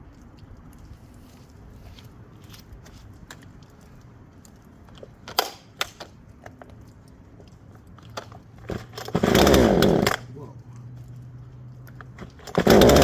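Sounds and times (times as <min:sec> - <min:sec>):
chainsaw being handled clatter: 0:08.0 - 0:10.3, 0:12.1 - 0:13.0.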